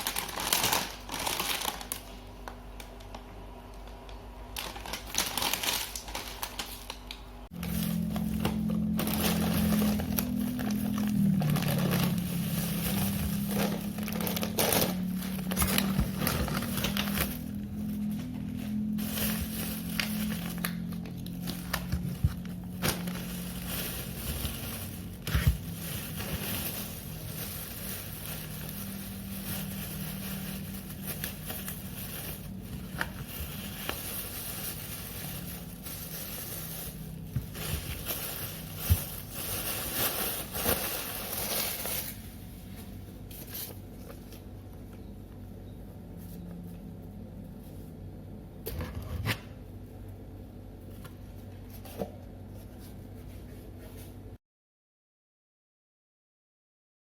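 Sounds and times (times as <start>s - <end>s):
rustling: 7.5s - 44.4s.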